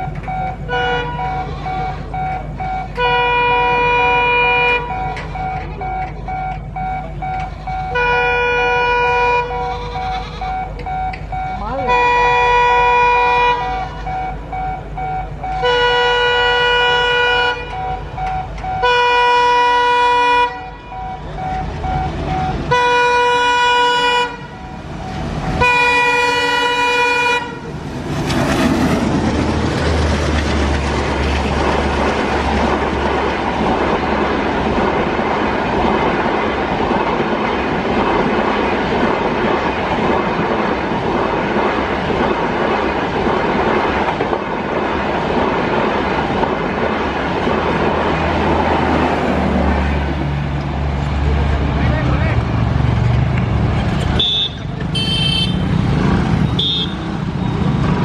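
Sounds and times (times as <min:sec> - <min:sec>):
train horn blasts: 0:00.7 - 0:02.1, 0:03.0 - 0:05.0, 0:07.6 - 0:10.7, 0:11.8 - 0:14.4, 0:15.4 - 0:17.9, 0:18.8 - 0:21.0, 0:22.7 - 0:24.6, 0:25.5 - 0:27.7, 0:54.2 - 0:55.8
wheels clattering over rail joints: 0:21.2 - 0:55.0.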